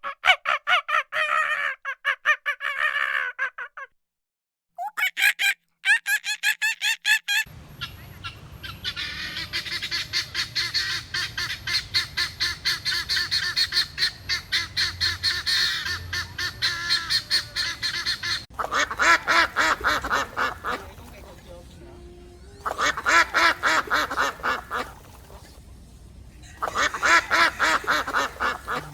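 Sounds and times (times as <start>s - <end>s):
fowl honking and cackling: 6.2s - 21.4s, 22.6s - 25.6s, 26.4s - 28.9s
steady background noise: 7.5s - 28.9s.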